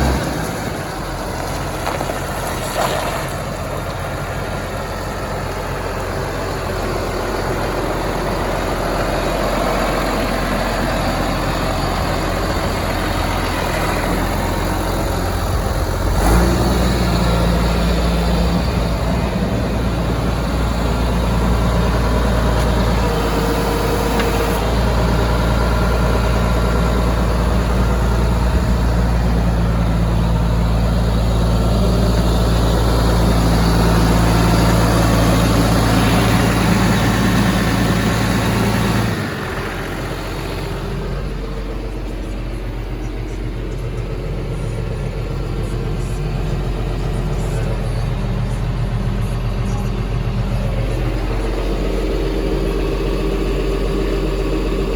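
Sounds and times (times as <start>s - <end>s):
tractor diesel engine idling: 0.0s - 54.9s.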